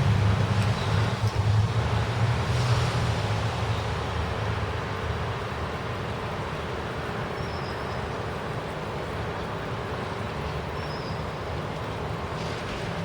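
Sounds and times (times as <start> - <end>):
rushing storm noise: 0.0 - 7.2, 11.9 - 13.0.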